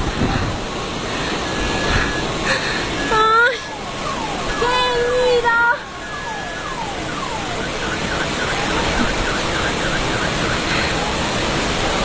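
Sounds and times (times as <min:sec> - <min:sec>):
heavy rain and floodwater rushing: 0:00.0 - 0:12.0
car alarm: 0:01.4 - 0:02.3, 0:02.9 - 0:10.9.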